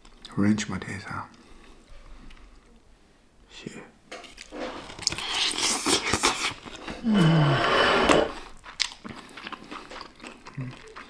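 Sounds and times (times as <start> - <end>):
crunching fried chicken: 8.4 - 11.0.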